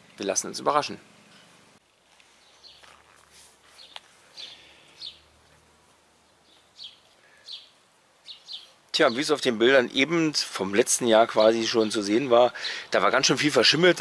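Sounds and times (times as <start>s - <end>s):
faint bird chirps: 3.7s - 5.3s, 6.2s - 9.3s.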